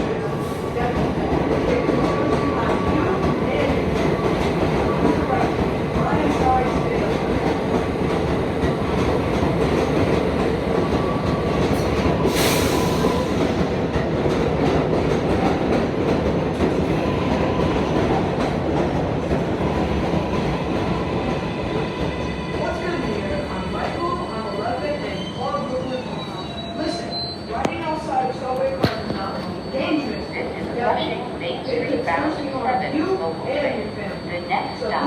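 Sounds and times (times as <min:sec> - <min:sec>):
subway train rumbling: 0:00.0 - 0:35.0
sharp hiss of air: 0:12.3 - 0:13.4.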